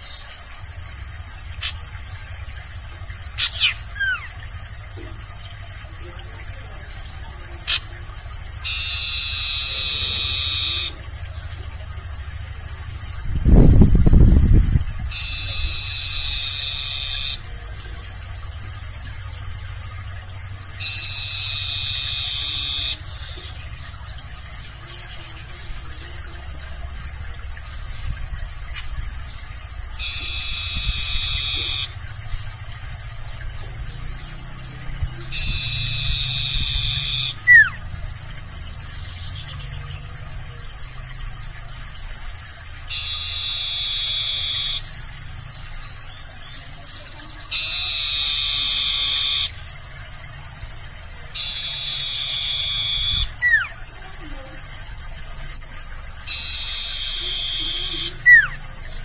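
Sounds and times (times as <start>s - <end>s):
low steady hum: 0.0s - 59.0s
songbird buzzy trilling call: 1.6s - 1.9s, 3.3s - 4.5s, 7.6s - 8.0s, 8.6s - 11.2s, 15.0s - 17.6s, 20.7s - 26.1s, 29.9s - 32.1s, 34.6s - 37.9s, 42.8s - 49.7s, 51.2s - 54.0s, 56.2s - 59.0s.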